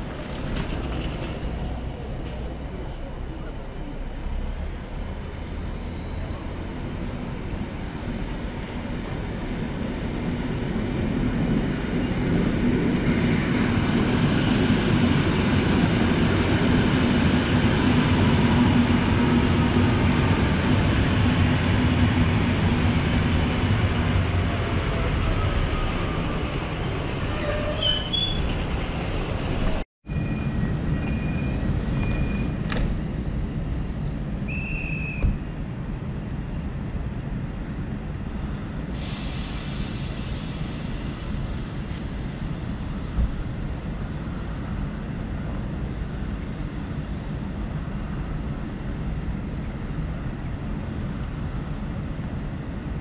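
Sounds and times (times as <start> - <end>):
train wheels rumbling: 0.0 - 34.3.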